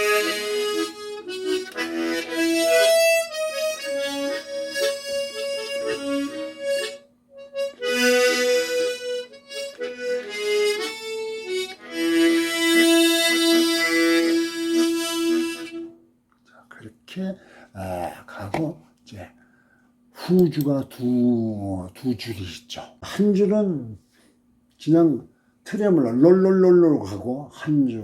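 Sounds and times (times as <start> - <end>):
harmonica playing slow melody: 0.0 - 16.0.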